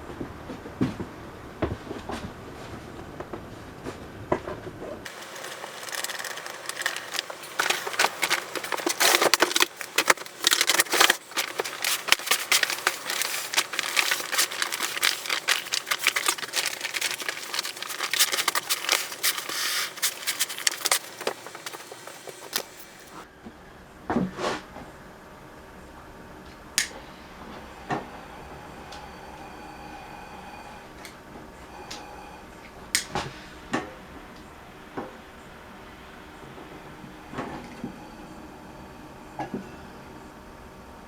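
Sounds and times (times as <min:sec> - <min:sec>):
crinkling and rustling: 0:00.1 - 0:23.2.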